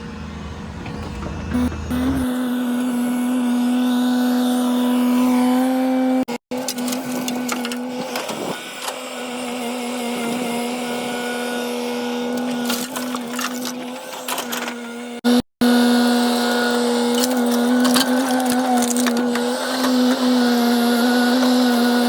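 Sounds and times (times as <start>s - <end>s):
excavator drone with whine: 0.0s - 22.0s.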